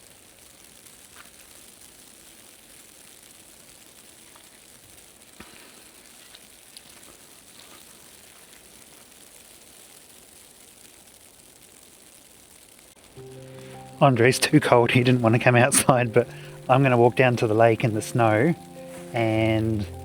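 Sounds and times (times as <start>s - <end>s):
wet snow and sleet falling: 0.0s - 20.0s.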